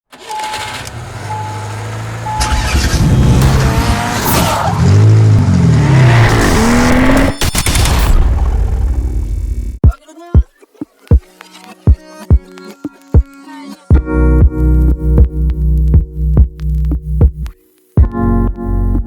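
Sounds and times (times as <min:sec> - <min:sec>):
race car engines revving: 0:00.1 - 0:07.4
tire squeal: 0:01.4 - 0:05.4
short beeps: 0:02.3 - 0:02.8.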